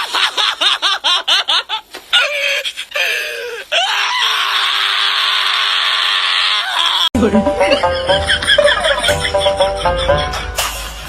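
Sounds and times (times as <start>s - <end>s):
person screaming: 2.2s - 7.1s
person laughing: 6.9s - 10.8s.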